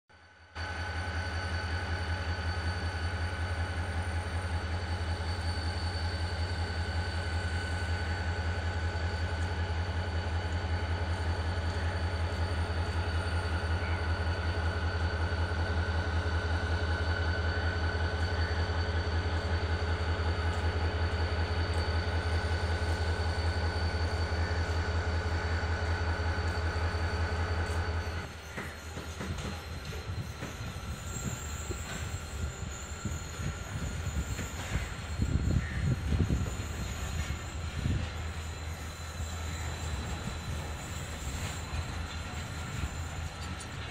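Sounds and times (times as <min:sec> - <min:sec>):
train low mechanical drone: 0:00.1 - 0:43.9
faint high whine: 0:00.2 - 0:43.9.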